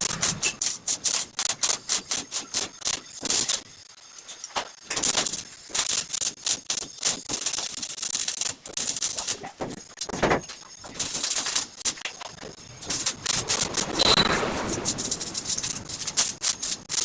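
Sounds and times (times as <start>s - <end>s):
arc welding crackling hiss: 0.0s - 17.0s.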